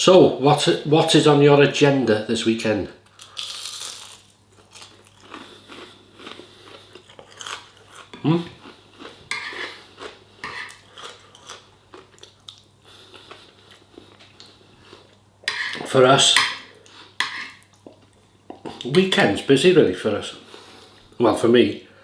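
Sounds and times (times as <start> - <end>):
person chewing food: 3.1 - 15.8, 16.7 - 18.8.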